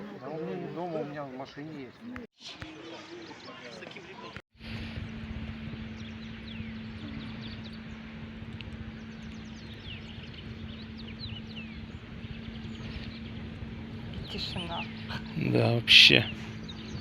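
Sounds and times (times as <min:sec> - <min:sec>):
low rumble: 0:04.6 - 0:17.0
steady low hum: 0:04.6 - 0:17.0
small birds chirping: 0:05.0 - 0:17.0.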